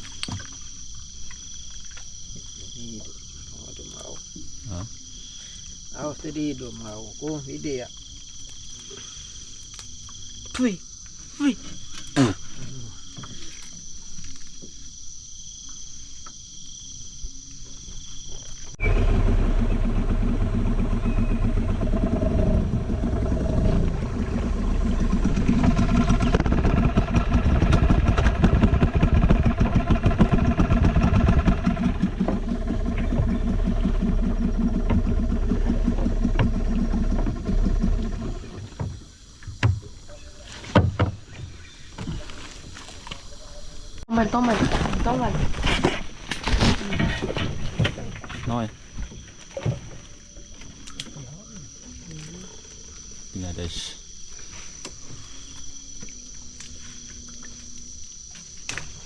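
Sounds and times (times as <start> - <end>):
insects trilling: 0.0 - 59.0
outboard engine running: 18.7 - 40.2.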